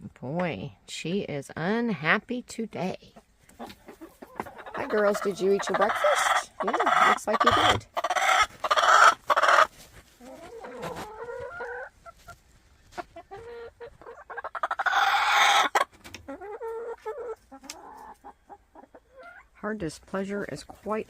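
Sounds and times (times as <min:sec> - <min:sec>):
hen complaining calls: 0:03.8 - 0:12.3, 0:13.0 - 0:19.6.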